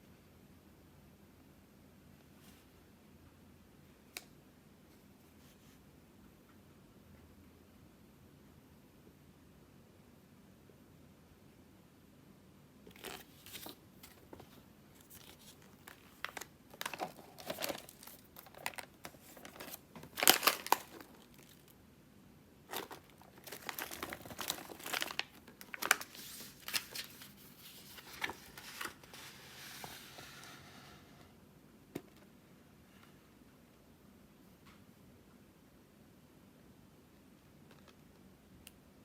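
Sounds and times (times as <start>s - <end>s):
plastic packaging crinkling: 12.9s - 21.7s, 22.7s - 29.4s.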